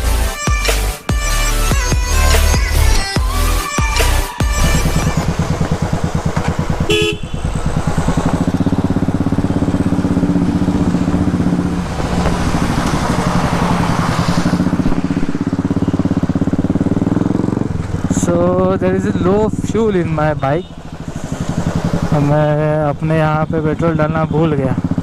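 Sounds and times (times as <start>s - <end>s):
motorcycle engine thumping: 4.5s - 22.4s
vehicle horn toot: 6.8s - 7.7s.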